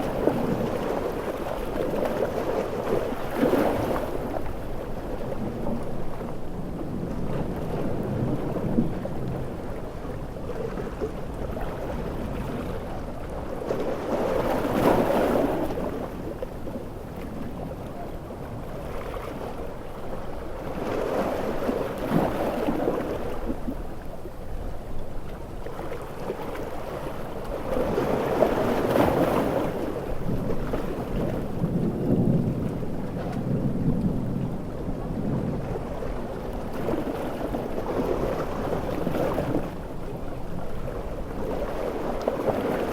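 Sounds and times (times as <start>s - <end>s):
ocean waves breaking: 0.0s - 42.9s
thunder rumbling: 30.2s - 38.7s.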